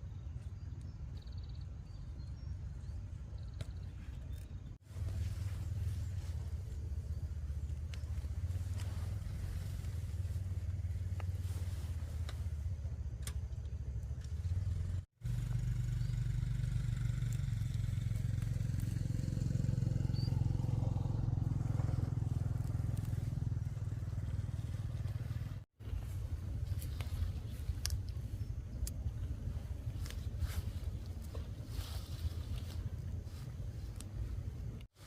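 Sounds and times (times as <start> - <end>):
motorbike engine running: 12.4 - 33.5.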